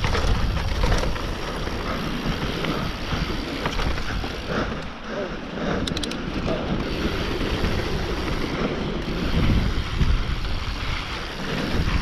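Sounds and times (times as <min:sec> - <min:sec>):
tyres rumbling over dirt: 0:00.0 - 0:05.3, 0:06.3 - 0:12.0
bike jolts: 0:00.0 - 0:12.0
wind rushing over microphone: 0:05.6 - 0:12.0.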